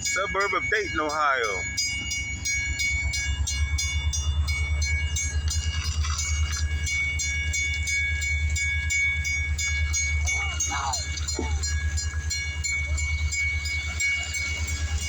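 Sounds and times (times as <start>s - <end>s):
locomotive engine rumbling: 0.0s - 15.0s.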